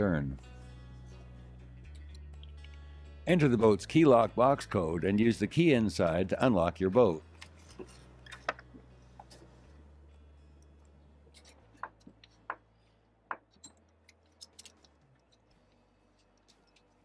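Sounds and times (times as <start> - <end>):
metallic key clicks and clinks: 13.5 - 15.4.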